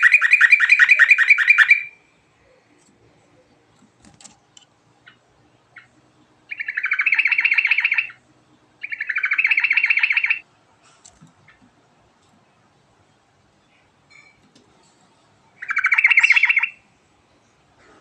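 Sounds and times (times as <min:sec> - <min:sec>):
bulbul singing rolling phrases: 0:00.0 - 0:03.7, 0:04.7 - 0:10.6, 0:15.3 - 0:17.7.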